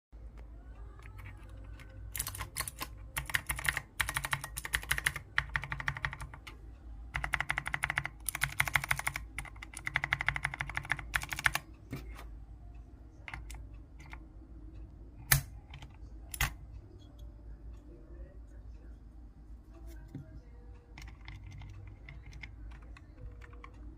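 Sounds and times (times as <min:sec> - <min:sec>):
mechanical keyboard typing: 0:01.0 - 0:12.3, 0:13.2 - 0:14.2, 0:15.2 - 0:16.6, 0:20.9 - 0:23.9.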